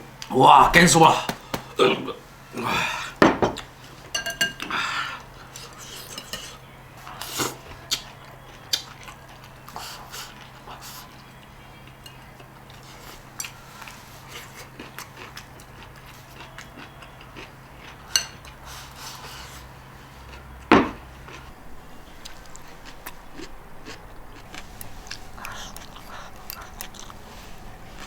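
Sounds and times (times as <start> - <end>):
chopsticks tapping bowls: 3.2 - 4.7, 5.6 - 6.6, 17.8 - 18.6
low hum: 21.0 - 28.0.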